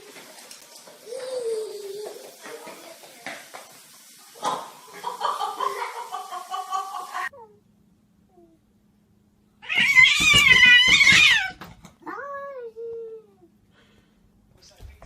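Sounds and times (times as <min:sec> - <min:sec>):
cat meowing: 0:09.6 - 0:12.4
cat yowling: 0:09.6 - 0:12.5.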